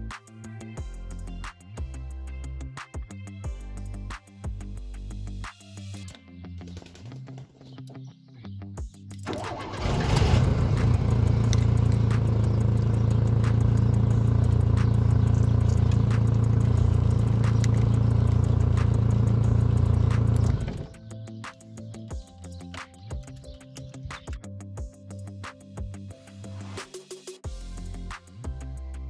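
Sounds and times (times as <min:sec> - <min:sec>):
car engine cranking and idling: 0:09.2 - 0:21.0.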